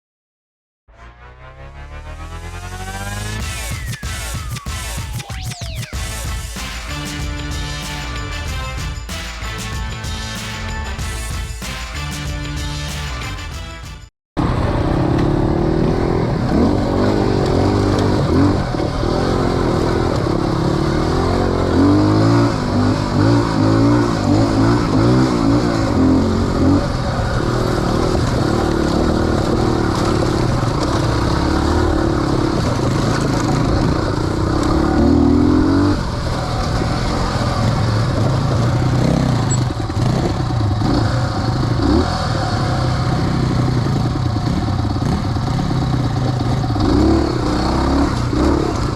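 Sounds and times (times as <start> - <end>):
motorcycle engine revving: 14.4 - 48.9.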